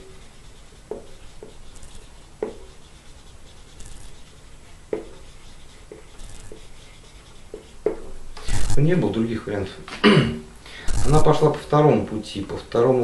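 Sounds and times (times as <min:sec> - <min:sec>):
light rubbing: 0:00.0 - 0:09.1.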